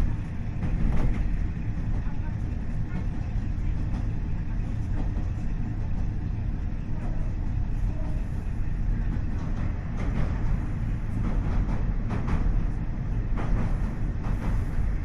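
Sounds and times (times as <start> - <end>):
train engine and wheels rumbling: 0.0 - 15.0.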